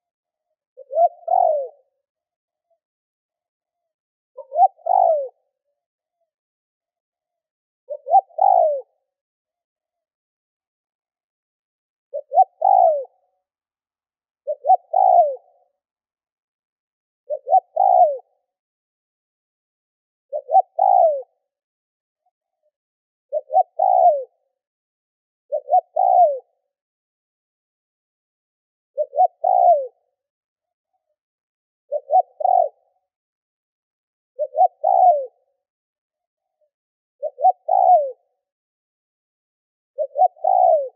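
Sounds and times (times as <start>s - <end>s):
dove cooing: 0.8s - 2.0s, 4.4s - 5.5s, 7.9s - 9.0s, 12.1s - 13.2s, 14.4s - 15.6s, 17.3s - 18.4s, 20.3s - 21.3s, 23.3s - 24.4s, 25.5s - 26.5s, 29.0s - 30.0s, 31.9s - 32.9s, 34.4s - 35.5s, 37.2s - 38.3s, 40.0s - 40.9s.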